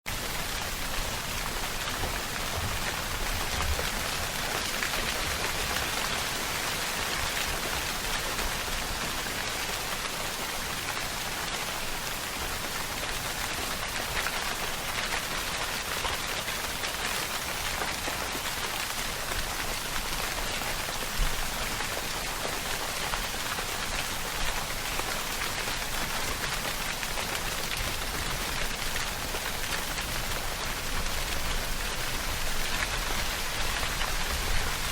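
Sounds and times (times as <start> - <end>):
rain pattering: 0.1 - 34.9.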